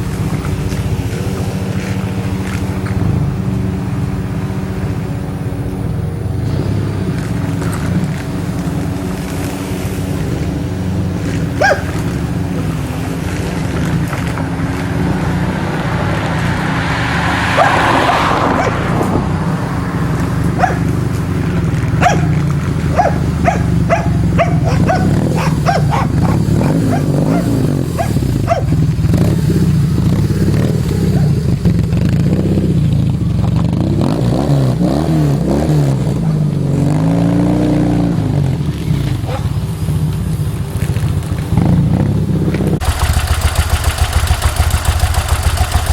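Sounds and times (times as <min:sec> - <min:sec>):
motorcycle engine idling: 0:00.0 - 0:16.3, 0:18.6 - 0:34.0, 0:38.3 - 0:45.9
dog barking: 0:11.6 - 0:12.0, 0:17.6 - 0:19.0, 0:20.5 - 0:21.0, 0:22.0 - 0:28.8, 0:31.0 - 0:31.4, 0:39.2 - 0:39.6.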